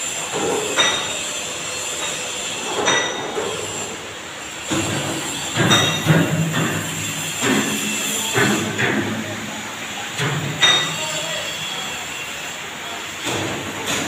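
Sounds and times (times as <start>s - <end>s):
high-pitched metallic squeals: 0.0s - 8.7s, 10.6s - 12.7s
workshop noise: 0.0s - 14.0s.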